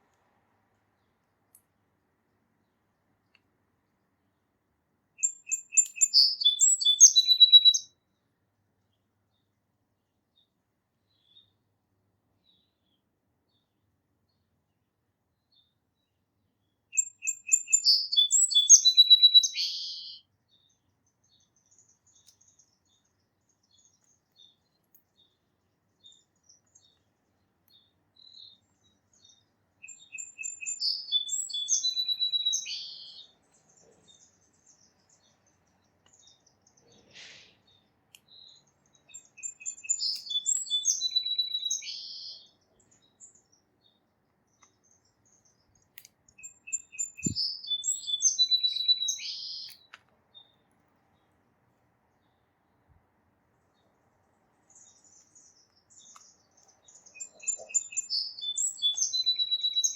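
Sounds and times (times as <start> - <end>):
song sparrow singing: 5.2 - 9.6, 10.2 - 52.9, 53.5 - 59.9.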